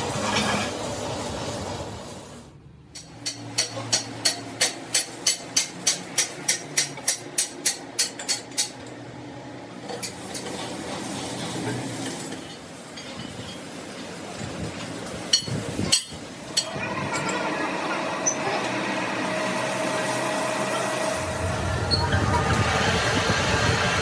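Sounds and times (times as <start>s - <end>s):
workshop background: 0.0s - 24.0s
hammer striking metal: 3.0s - 8.8s.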